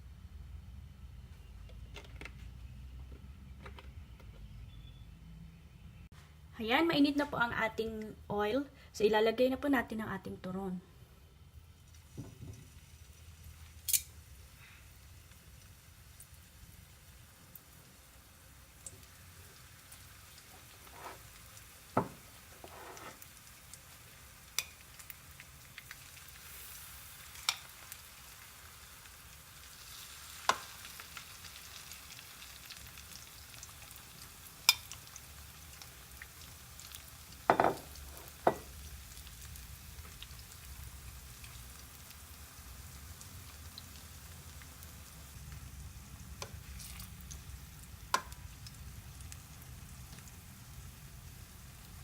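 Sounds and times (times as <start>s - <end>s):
food sizzling in hot oil: 11.6s - 52.0s
sharp clicks of frying: 11.6s - 52.0s.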